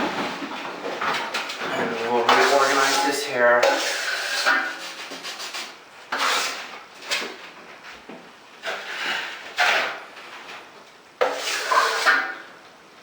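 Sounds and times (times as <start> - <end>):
steel trowel scraping compound: 2.1 - 6.8, 8.6 - 10.0, 11.2 - 12.5.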